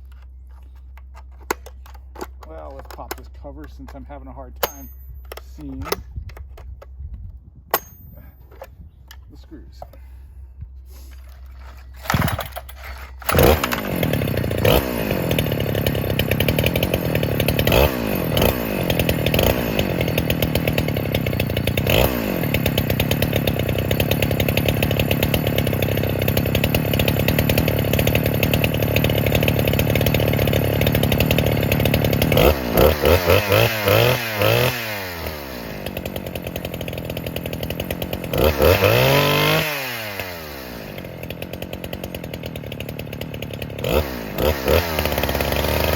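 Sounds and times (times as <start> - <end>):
chainsaw engine revving: 11.2 - 45.9.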